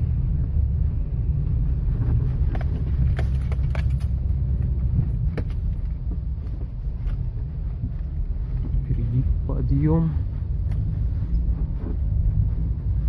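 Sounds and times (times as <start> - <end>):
road rumble inside car: 0.0 - 13.0.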